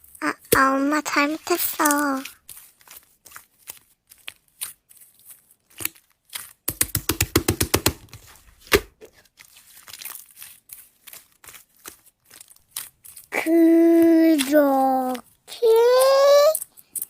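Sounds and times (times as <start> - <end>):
slime crackling and clicking: 14.0 - 17.0.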